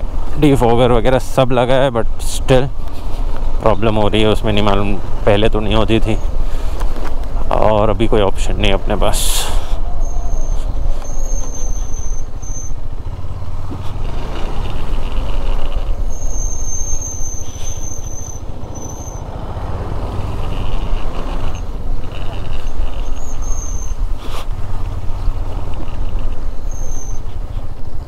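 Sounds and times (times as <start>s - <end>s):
motorcycle engine rumble: 0.0s - 28.0s
thin high squeal: 9.6s - 12.8s, 14.5s - 19.3s, 20.2s - 24.4s, 25.8s - 27.3s.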